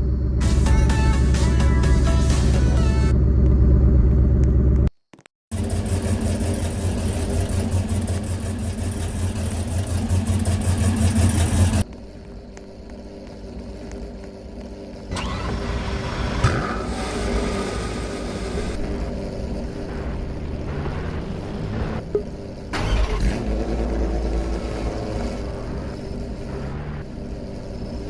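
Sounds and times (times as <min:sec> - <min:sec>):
car engine running: 0:00.0 - 0:04.9, 0:05.5 - 0:28.0
background music: 0:00.4 - 0:03.1
road noise: 0:05.5 - 0:28.0.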